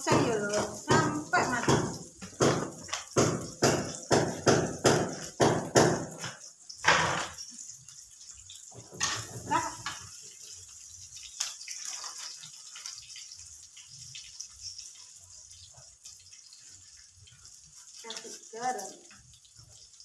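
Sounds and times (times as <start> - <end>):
squid sizzling in oil: 0.0 - 20.0
knocks or scrapes in wok: 8.8 - 10.1.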